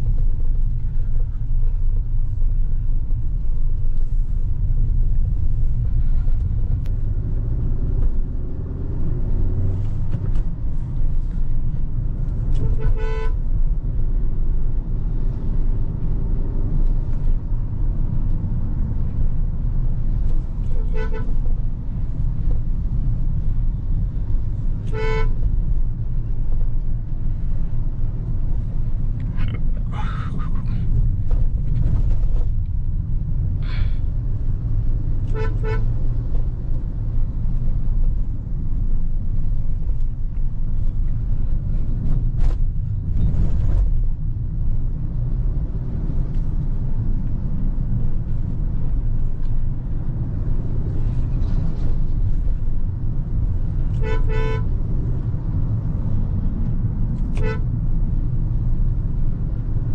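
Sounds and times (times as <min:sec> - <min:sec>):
car engine and road rumble: 0:00.0 - 0:59.9
car horn toots: 0:12.5 - 0:13.4, 0:20.7 - 0:21.4, 0:24.8 - 0:25.4, 0:35.3 - 0:35.9, 0:53.9 - 0:54.8, 0:57.3 - 0:57.7.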